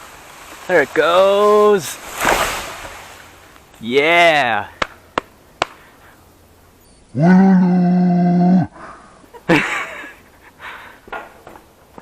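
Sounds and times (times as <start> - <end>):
man yelling: 3.8 - 4.7.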